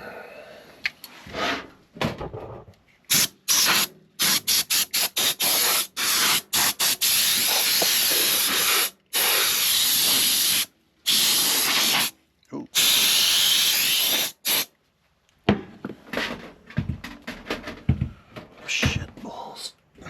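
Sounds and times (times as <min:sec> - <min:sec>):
compressed air duster spraying: 0:03.1 - 0:12.1, 0:12.8 - 0:14.7.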